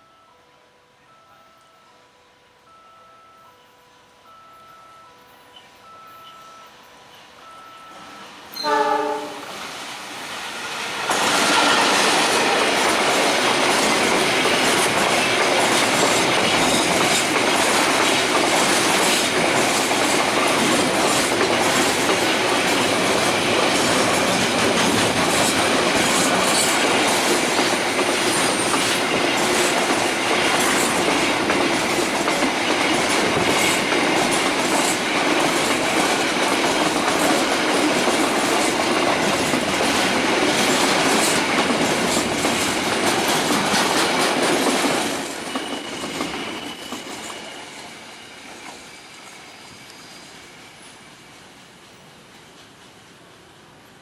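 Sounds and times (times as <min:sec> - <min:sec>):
train horn: 0:08.5 - 0:09.6, 0:10.6 - 0:12.8
train wheels clacking on rails: 0:10.2 - 0:50.6.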